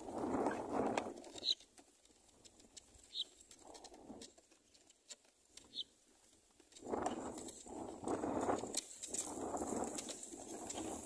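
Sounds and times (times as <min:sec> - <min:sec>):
songbird chirping: 0:03.0 - 0:03.4, 0:05.6 - 0:06.0.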